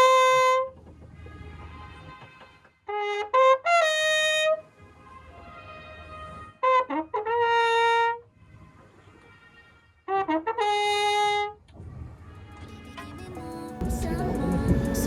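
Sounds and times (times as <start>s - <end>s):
trumpet playing: 0.0s - 0.7s, 2.9s - 8.2s, 9.4s - 11.6s
trumpet echo off mountains: 0.0s - 8.3s, 9.2s - 11.6s.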